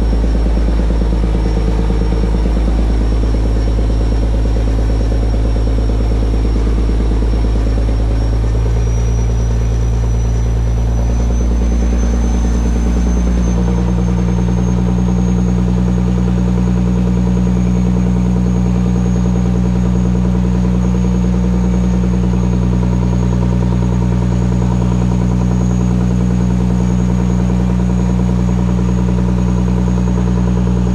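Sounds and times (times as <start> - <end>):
faint high whine: 0.0 - 21.7
boat engine running: 0.0 - 30.9.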